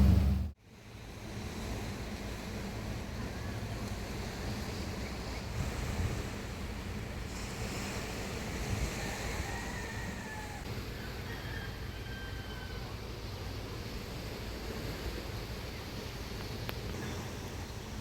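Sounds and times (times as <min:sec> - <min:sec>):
waves washing on shore: 0:00.0 - 0:18.0
wind over microphone: 0:01.3 - 0:10.7.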